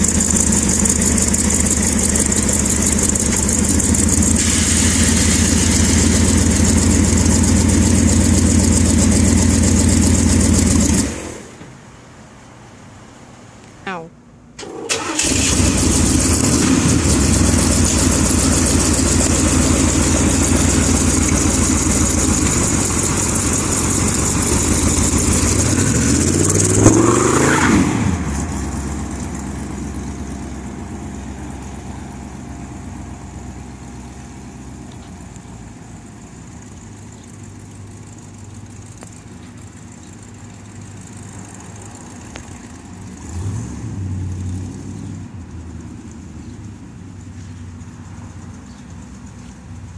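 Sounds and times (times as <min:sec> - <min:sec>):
truck engine revving: 0:00.0 - 0:11.5, 0:15.0 - 0:31.0, 0:43.1 - 0:46.2.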